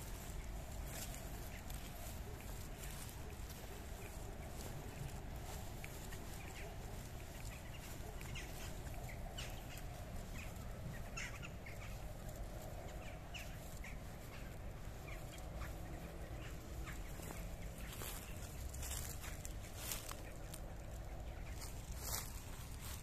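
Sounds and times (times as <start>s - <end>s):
birds calling: 0.0s - 23.0s.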